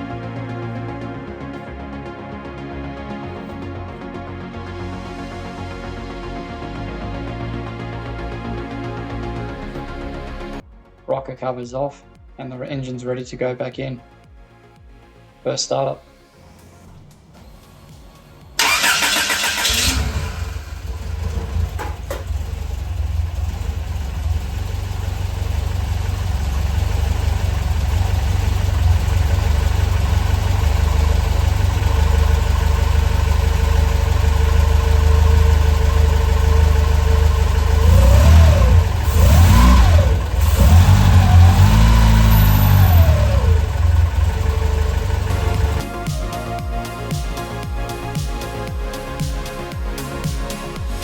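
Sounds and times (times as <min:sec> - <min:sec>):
engine revving: 0:16.7 - 0:45.9
engine starting and idling: 0:16.8 - 0:45.8.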